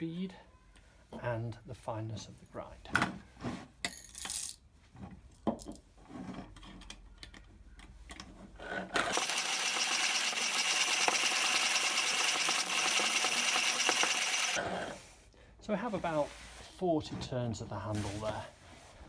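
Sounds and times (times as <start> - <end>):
manual coffee grinder grinding: 9.1 - 14.6.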